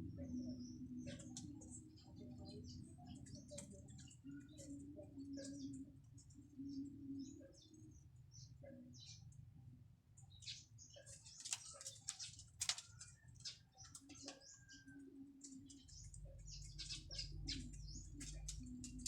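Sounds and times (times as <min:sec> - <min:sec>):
low steady hum: 0:00.0 - 0:10.9.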